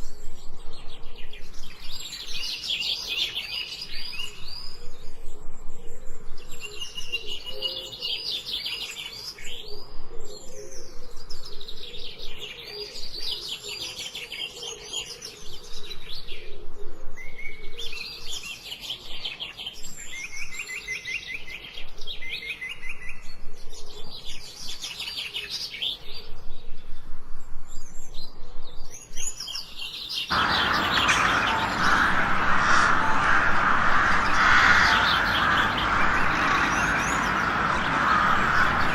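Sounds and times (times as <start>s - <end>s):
songbirds chirping and trilling: 29.0s - 38.9s
loud dense rushing: 30.3s - 38.9s.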